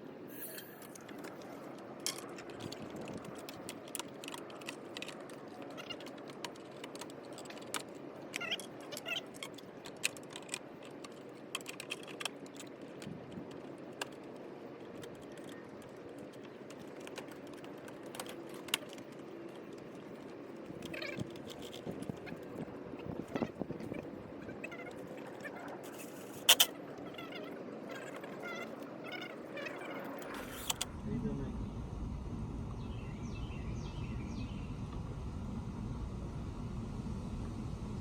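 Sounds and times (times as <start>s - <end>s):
low hum: 19.6s - 38.0s.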